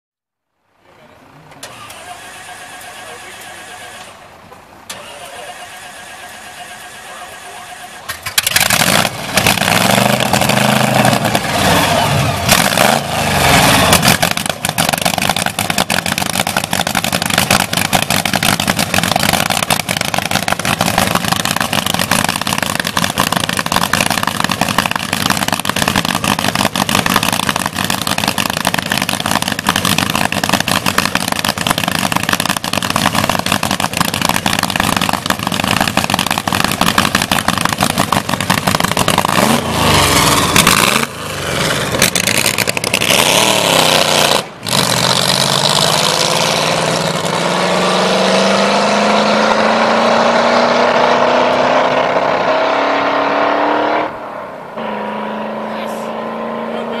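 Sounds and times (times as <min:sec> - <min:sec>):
race car engine revving: 0:04.9 - 0:57.0.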